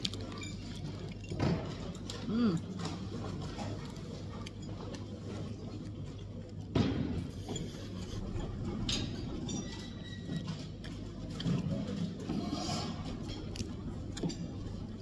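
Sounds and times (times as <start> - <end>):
chewing crisp food: 0.0 - 6.7, 10.7 - 15.0
low room hum: 0.0 - 15.0.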